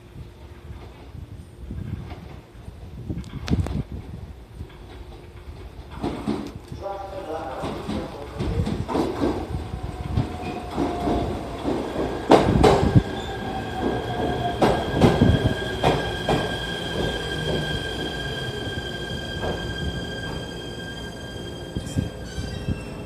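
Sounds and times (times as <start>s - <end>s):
falling whine of train: 7.8s - 23.0s
high-pitched brake squeal: 15.2s - 23.0s.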